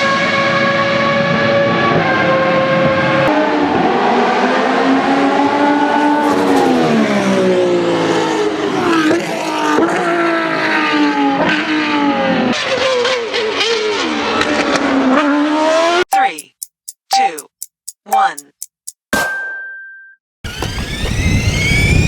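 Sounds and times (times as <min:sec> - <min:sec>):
sharp clicks: 0:16.1 - 0:19.1.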